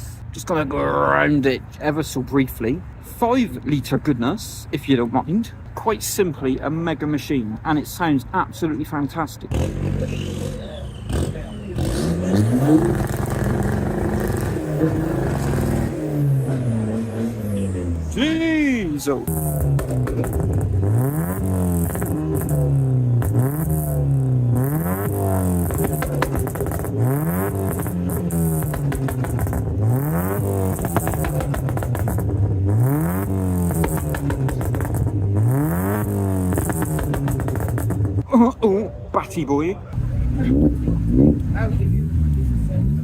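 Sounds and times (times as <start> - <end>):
car engine revving: 9.5 - 38.2, 40.0 - 43.0
sharp exhaust crackles: 9.5 - 38.2.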